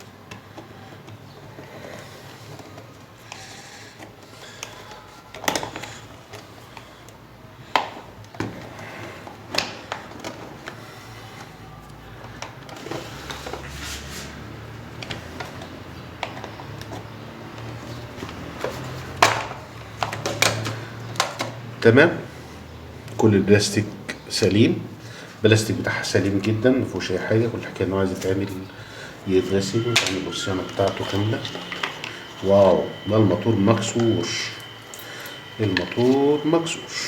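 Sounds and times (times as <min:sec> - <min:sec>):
plastic parts clicking and knocking: 0:00.0 - 0:13.7, 0:15.0 - 0:21.7.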